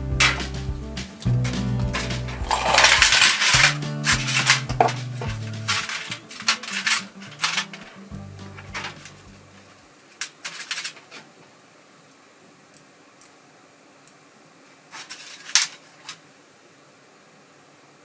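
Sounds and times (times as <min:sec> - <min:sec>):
metal parts scraping and clicking: 0:02.0 - 0:08.0, 0:15.0 - 0:16.2.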